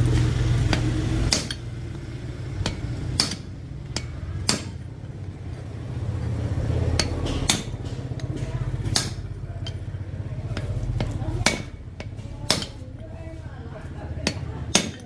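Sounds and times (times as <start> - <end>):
low machine hum: 0.0 - 15.0
sharp taps on metal: 2.6 - 4.9, 7.0 - 9.9, 10.5 - 12.9, 14.2 - 15.0.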